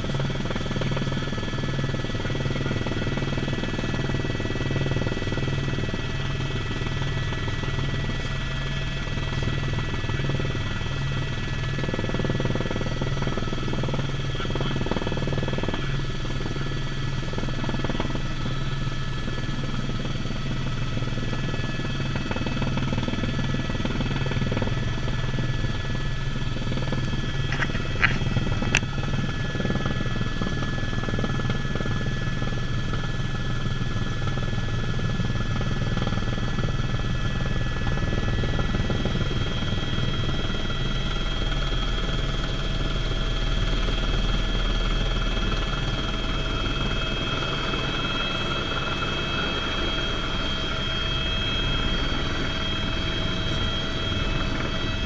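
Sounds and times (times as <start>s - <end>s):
helicopter cabin drone: 0.0s - 55.0s
high whine: 45.5s - 55.0s.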